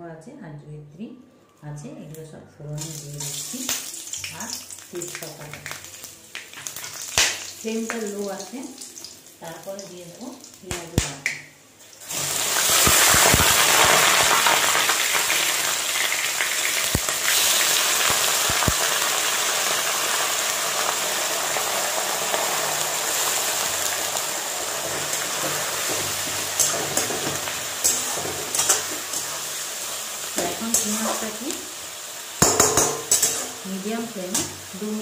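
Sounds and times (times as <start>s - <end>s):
food sizzling in hot oil: 2.8s - 35.0s
metal spatula clicking on pan: 32.4s - 33.5s.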